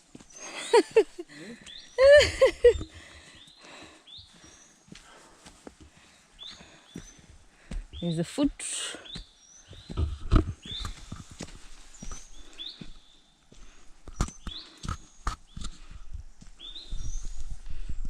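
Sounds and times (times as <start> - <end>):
footsteps through undergrowth: 9.1 - 13.7.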